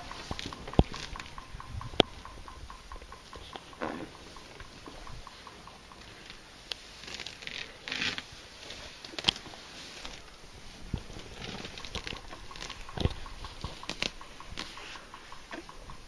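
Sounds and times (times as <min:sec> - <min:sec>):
sharp snaps: 0:00.0 - 0:08.3, 0:09.0 - 0:16.0
rustling and tearing of grass: 0:06.1 - 0:15.1.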